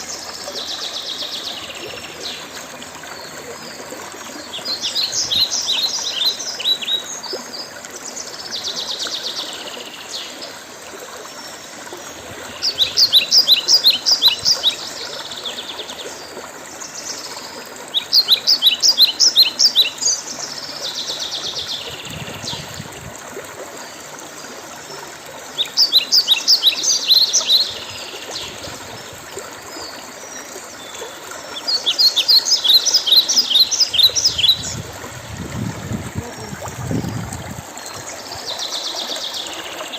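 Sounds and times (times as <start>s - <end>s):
songbird singing: 0.0s - 10.6s, 11.3s - 22.9s, 24.9s - 39.9s.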